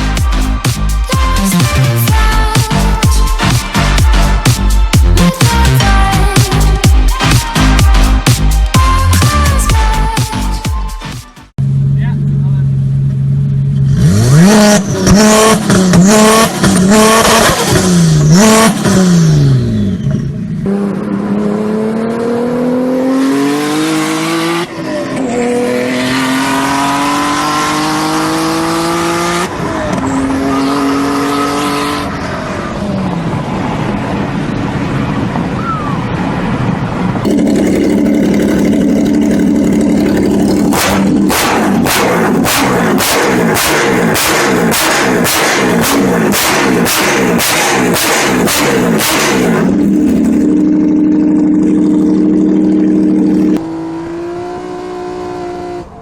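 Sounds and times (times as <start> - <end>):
sports car engine revving: 11.6 - 34.2, 36.6 - 56.0.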